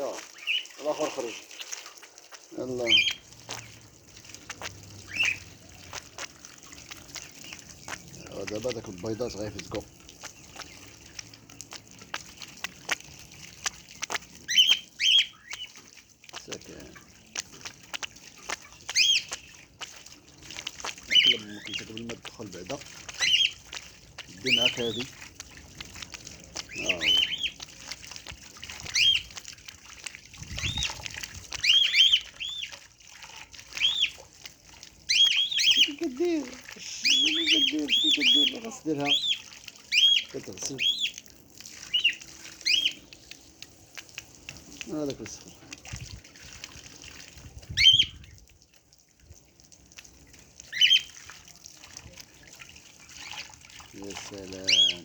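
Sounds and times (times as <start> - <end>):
bird upward chirp: 26.7 - 27.6, 31.6 - 32.8, 33.7 - 34.2, 35.1 - 36.0, 36.8 - 41.2, 41.8 - 43.3, 47.7 - 48.2, 50.7 - 51.1, 54.6 - 55.0.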